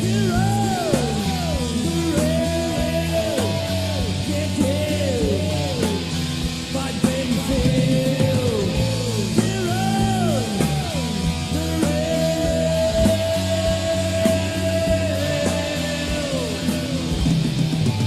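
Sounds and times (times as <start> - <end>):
bass guitar: 0.0 - 18.0
drums: 0.0 - 18.0
rhythm guitar: 0.0 - 18.0.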